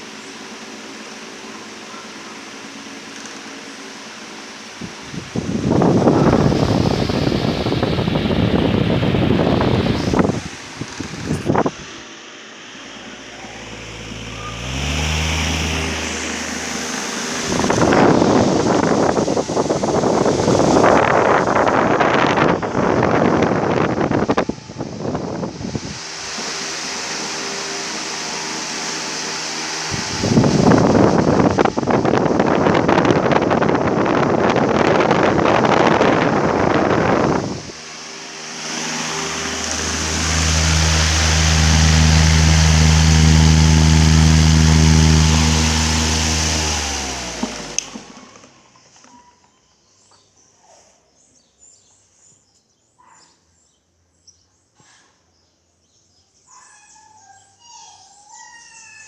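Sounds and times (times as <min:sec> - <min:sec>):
fan air buffeting microphone: 0:00.0 - 0:48.8
fan motor hum: 0:00.0 - 0:49.0.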